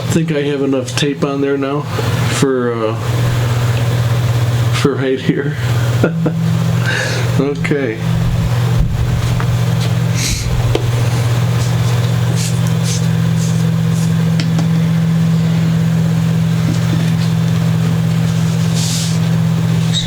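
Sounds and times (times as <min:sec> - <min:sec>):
low machine hum: 0:00.0 - 0:20.0
scratchy strokes: 0:18.2 - 0:20.0.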